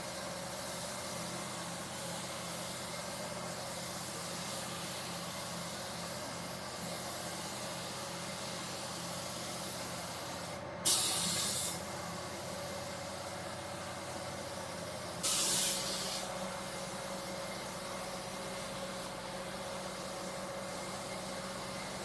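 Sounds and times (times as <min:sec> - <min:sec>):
spray gun hissing: 0:00.1 - 0:22.0
blast of air: 0:10.8 - 0:11.8, 0:15.2 - 0:16.3.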